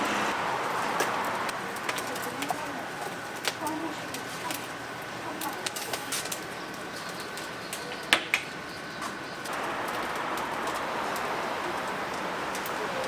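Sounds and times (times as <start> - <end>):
firewood crackling: 0.0 - 13.0
steady sizzling hiss: 0.0 - 13.0
sharp pops of fire: 5.4 - 13.0.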